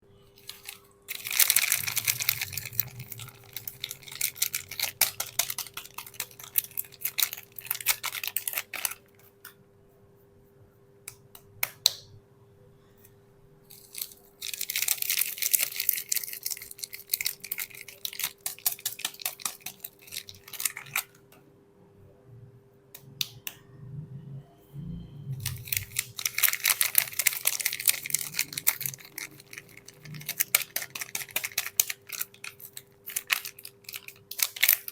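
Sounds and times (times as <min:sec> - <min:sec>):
packaging crinkling and tearing: 0:00.4 - 0:09.2, 0:13.7 - 0:21.2, 0:25.4 - 0:34.9.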